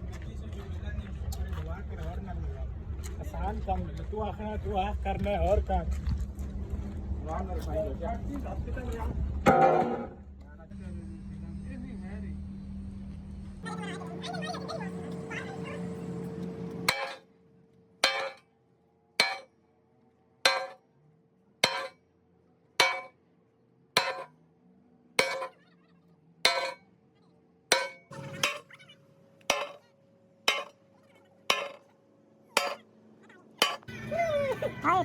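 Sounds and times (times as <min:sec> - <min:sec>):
metal being struck: 0:16.9 - 0:17.2, 0:18.0 - 0:18.4, 0:19.2 - 0:19.5, 0:20.5 - 0:20.8, 0:21.6 - 0:22.0, 0:22.8 - 0:23.1, 0:24.0 - 0:24.3, 0:25.2 - 0:25.6, 0:26.5 - 0:26.8, 0:27.7 - 0:28.7, 0:29.5 - 0:29.8, 0:30.5 - 0:30.8, 0:31.5 - 0:31.8, 0:32.6 - 0:32.8, 0:33.6 - 0:33.9.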